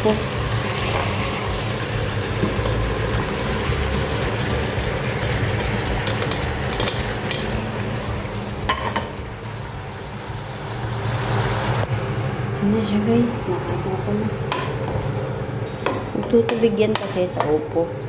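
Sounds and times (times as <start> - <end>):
chicken sizzling in a pot: 0.0 - 11.9.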